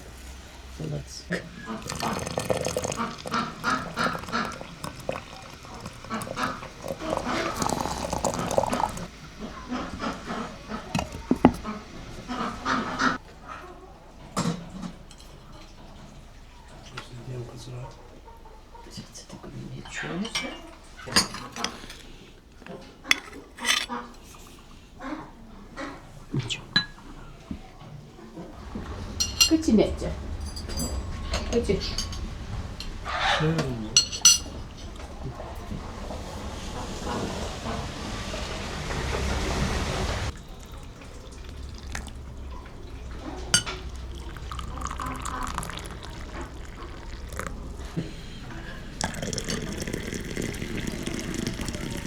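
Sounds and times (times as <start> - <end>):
liquid being poured: 1.3 - 9.1, 10.9 - 13.1, 28.6 - 52.0
cutlery and dishes clinking: 20.4 - 22.2, 23.1 - 24.0, 33.6 - 34.8.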